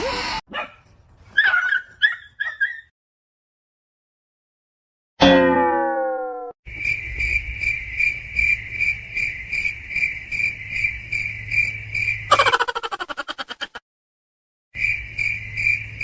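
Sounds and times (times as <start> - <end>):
cricket chirping: 6.7 - 13.0, 14.8 - 16.0.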